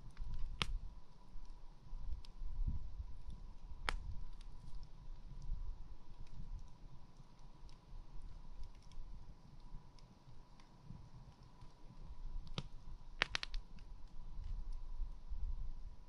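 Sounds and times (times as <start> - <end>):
campfire crackling: 0.0 - 16.0
sharp pop of fire: 3.8 - 4.1, 12.5 - 13.6.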